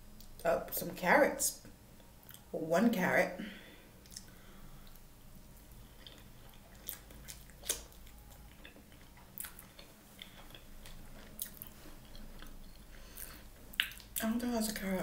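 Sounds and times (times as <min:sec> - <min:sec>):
soft wet chewing: 0:01.6 - 0:02.5, 0:04.0 - 0:14.8
mouth clicks: 0:13.2 - 0:14.2.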